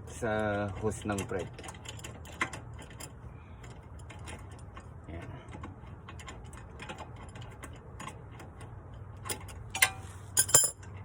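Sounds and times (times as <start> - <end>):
metal tools clinking: 9.3 - 11.0.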